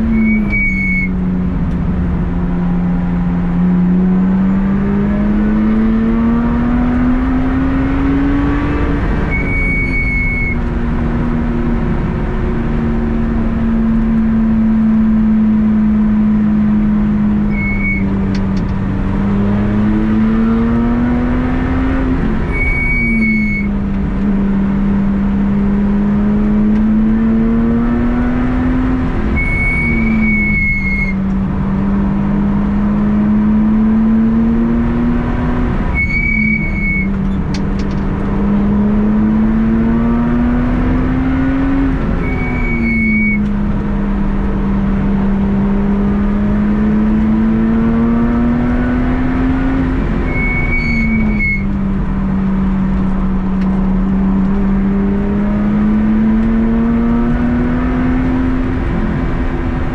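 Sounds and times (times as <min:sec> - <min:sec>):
brief high-pitched tone: 0:00.0 - 0:01.1, 0:09.2 - 0:10.6, 0:17.5 - 0:18.2, 0:22.5 - 0:23.7, 0:29.4 - 0:31.2, 0:35.9 - 0:37.2, 0:42.2 - 0:43.5, 0:50.3 - 0:51.7
car engine running hard: 0:00.0 - 0:59.9
road and wind noise: 0:00.0 - 0:59.9.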